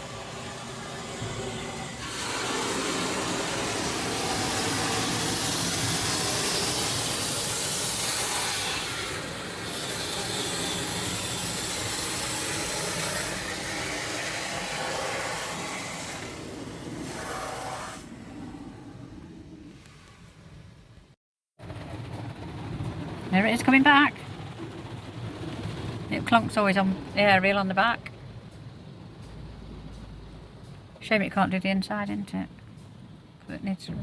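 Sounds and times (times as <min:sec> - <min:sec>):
car wash spraying water: 0:00.0 - 0:18.4.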